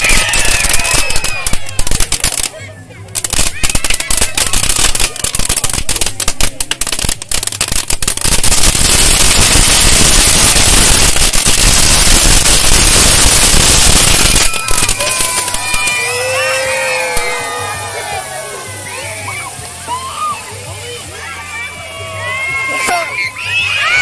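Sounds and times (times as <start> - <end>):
firecrackers popping: 0.0 - 17.7.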